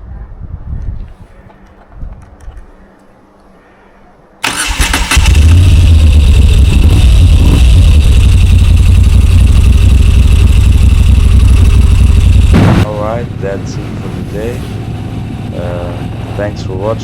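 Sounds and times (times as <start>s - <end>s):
starter motor cranking: 4.4s - 9.7s
motorcycle engine idling: 4.6s - 12.6s.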